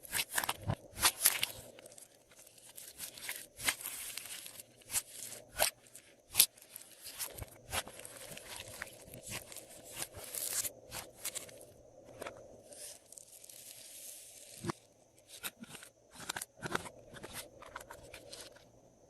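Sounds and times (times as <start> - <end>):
soft crackly hiss: 1.2 - 15.2.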